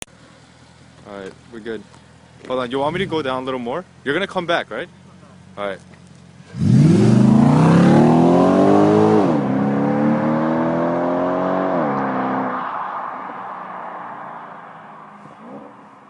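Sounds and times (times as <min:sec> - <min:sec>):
car engine accelerating with upshifts: 0:05.1 - 0:16.0.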